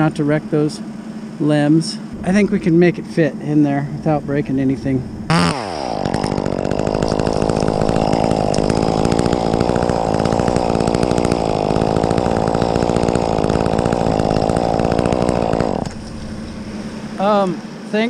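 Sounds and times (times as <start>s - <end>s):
chainsaw revving at full throttle: 5.3s - 17.6s.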